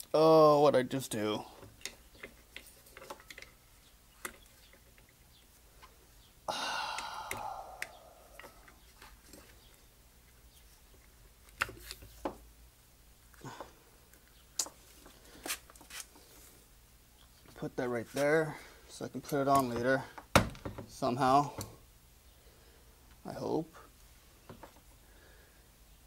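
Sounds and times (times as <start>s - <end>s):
small metal parts clicking: 1.6s - 5.2s.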